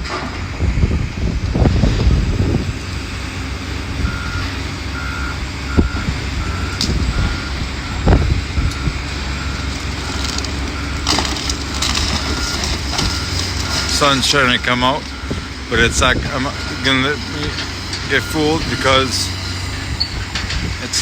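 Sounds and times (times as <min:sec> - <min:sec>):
diesel engine rumble: 0:00.0 - 0:21.0
backup alarm beeping: 0:04.0 - 0:20.5.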